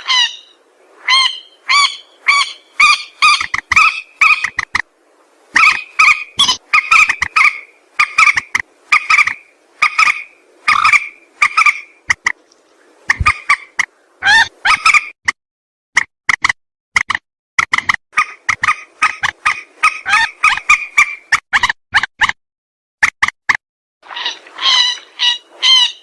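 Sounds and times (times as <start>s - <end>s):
rail bird calling: 0.0s - 4.8s, 5.6s - 12.3s, 13.1s - 15.2s, 18.2s - 21.3s, 24.1s - 26.0s.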